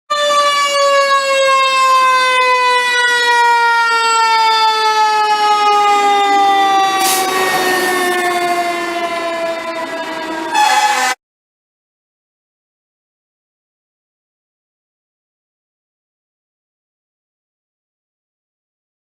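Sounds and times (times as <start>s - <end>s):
mechanical siren winding down: 0.1s - 11.2s.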